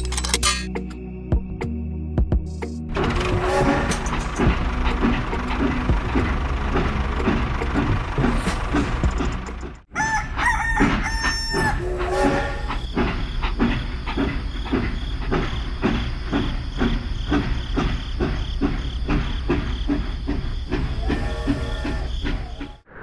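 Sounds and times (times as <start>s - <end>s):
rhythmic mechanical sound: 2.4s - 9.9s
small engine chugging: 2.9s - 22.8s
rooster crowing: 9.9s - 12.8s.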